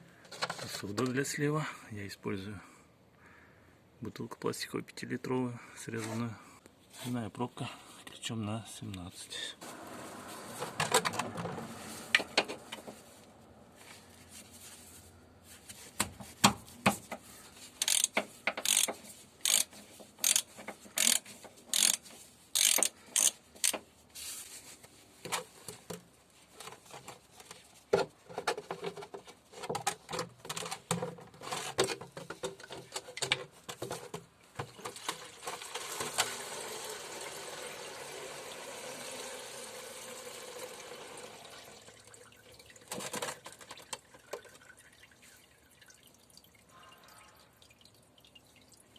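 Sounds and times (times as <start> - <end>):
ratchet wrench clicking: 17.8 - 23.8
oil draining into plastic bottle: 34.6 - 48.9.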